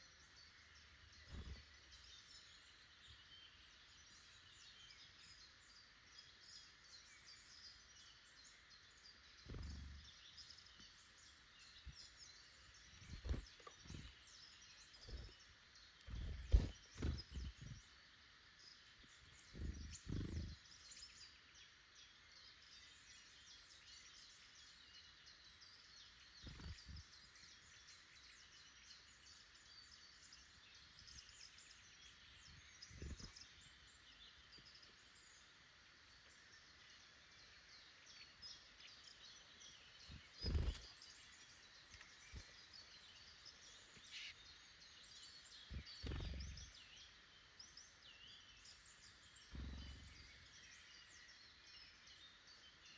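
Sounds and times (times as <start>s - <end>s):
faint birdsong chirps: 0.0s - 52.9s
soft low thumps: 16.1s - 17.8s, 40.1s - 40.8s, 45.8s - 46.7s, 49.6s - 50.4s.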